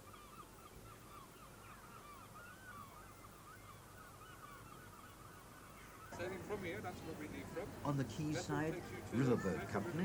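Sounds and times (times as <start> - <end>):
flock of birds squawking: 0.0 - 7.4.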